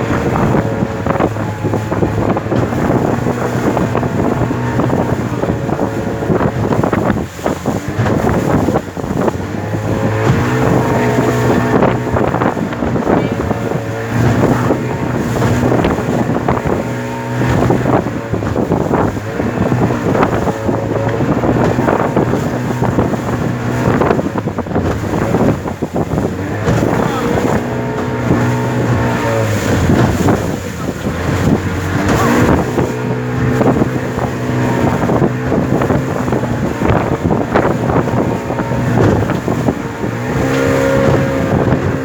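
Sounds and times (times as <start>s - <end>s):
motorboat engine running: 0.0s - 42.0s
water noise: 0.0s - 42.0s
wind buffeting microphone: 0.0s - 42.0s.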